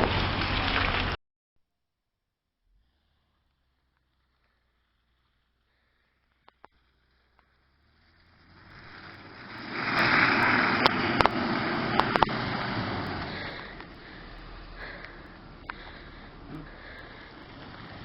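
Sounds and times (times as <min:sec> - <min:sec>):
vehicle rushing over rough ground: 0:00.0 - 0:01.2, 0:02.8 - 0:18.0.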